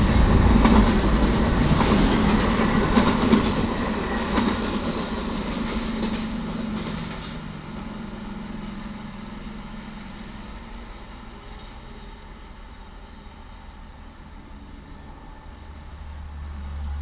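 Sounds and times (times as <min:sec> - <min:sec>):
train wheels clattering on rails: 0:00.0 - 0:12.2.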